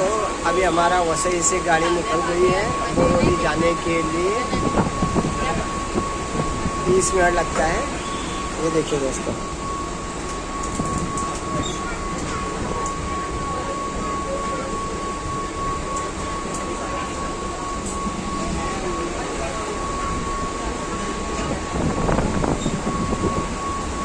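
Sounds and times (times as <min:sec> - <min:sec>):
high whine: 0:00.0 - 0:24.0
train rumble and rattle: 0:00.0 - 0:24.0.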